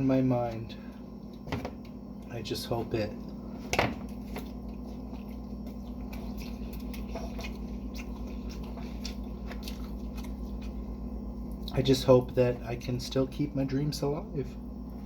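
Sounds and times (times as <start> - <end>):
person chewing food: 4.0 - 11.8.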